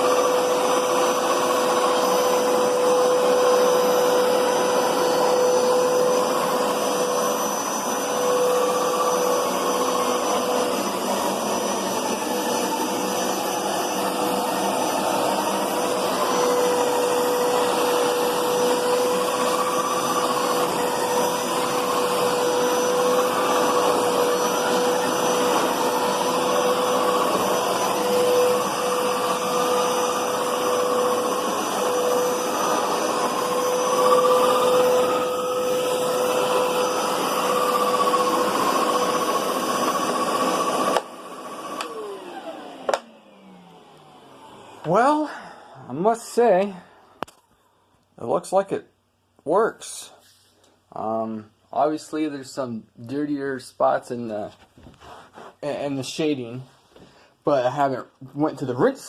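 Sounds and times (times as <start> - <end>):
spinning brushes scrubbing carpet: 0.0 - 42.9
carpet cleaner suction motor whining: 0.0 - 46.6.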